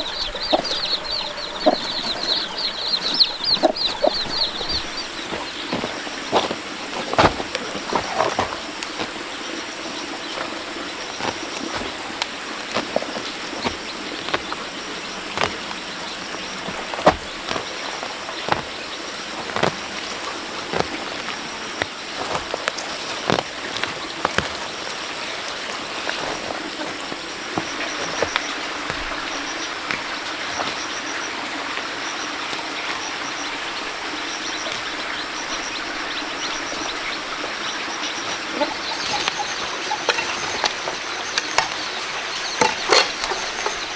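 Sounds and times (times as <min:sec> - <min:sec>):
high-pitched chirping: 0:00.0 - 0:05.3
rushing water: 0:00.0 - 0:43.9.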